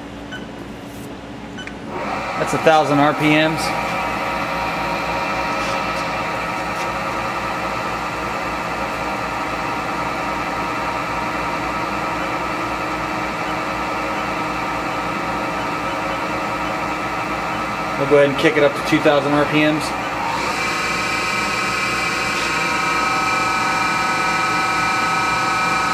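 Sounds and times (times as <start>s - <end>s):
machine spindle hum and whine: 0.0s - 25.9s.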